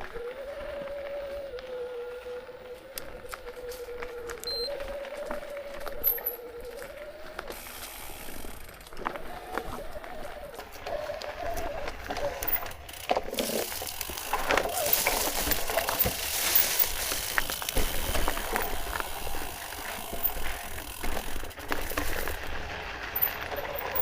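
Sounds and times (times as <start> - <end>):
steady rushing hiss: 6.3 - 11.4.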